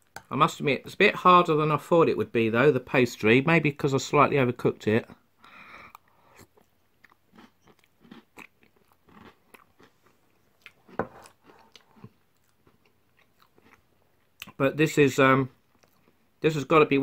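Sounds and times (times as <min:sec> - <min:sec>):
chewing with crunches: 0:05.9 - 0:14.6, 0:15.6 - 0:16.3.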